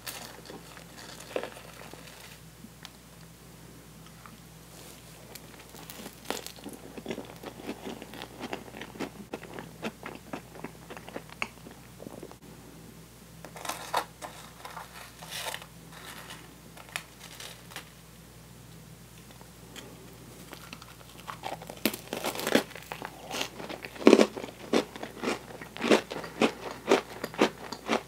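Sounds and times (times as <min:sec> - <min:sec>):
chewing crunchy cookie: 0:00.0 - 0:02.4, 0:04.1 - 0:12.4, 0:19.8 - 0:28.0.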